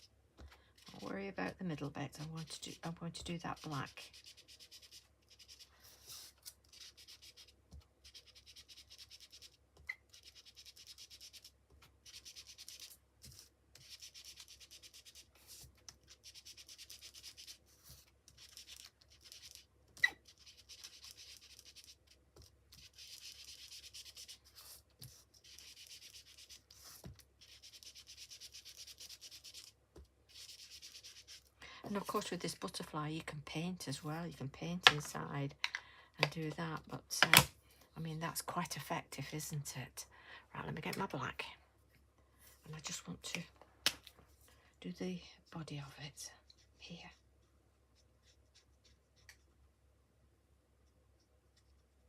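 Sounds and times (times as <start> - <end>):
scratchy ink rubbing on paper: 3.5 - 19.6, 22.8 - 29.7, 30.3 - 31.5.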